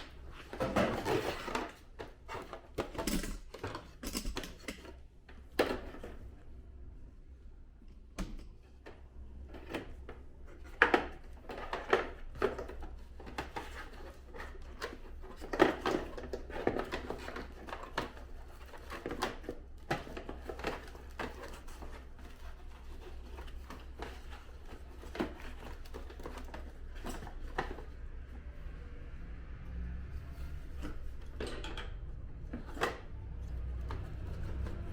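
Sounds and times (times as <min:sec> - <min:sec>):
plastic and metal parts clicking: 0:00.0 - 0:06.0.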